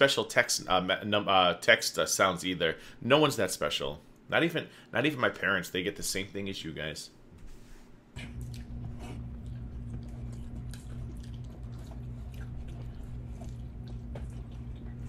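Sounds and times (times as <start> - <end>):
steady low hum: 0.0 - 15.0
people chewing: 8.2 - 15.0.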